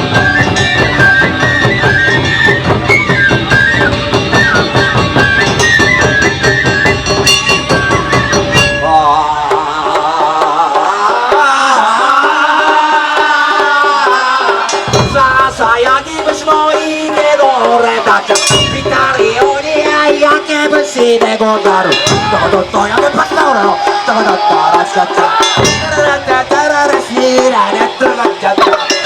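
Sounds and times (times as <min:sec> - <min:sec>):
taiko drums beating fast: 0:00.0 - 0:29.0
high melodic lines: 0:14.6 - 0:29.0.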